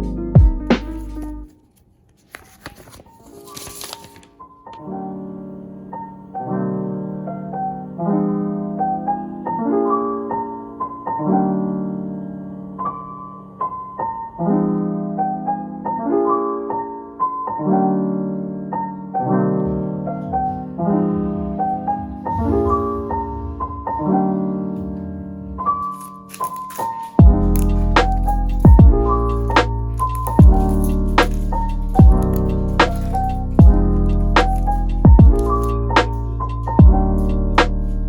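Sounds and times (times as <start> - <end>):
calm piano chords: 0.0 - 1.6, 2.4 - 38.0.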